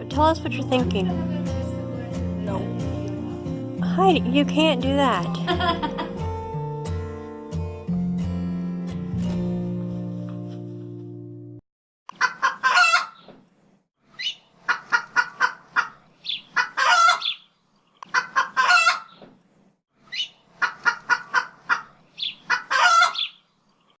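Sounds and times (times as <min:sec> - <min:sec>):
chicken cackling: 0:12.1 - 0:13.3, 0:14.2 - 0:19.2, 0:20.1 - 0:23.4.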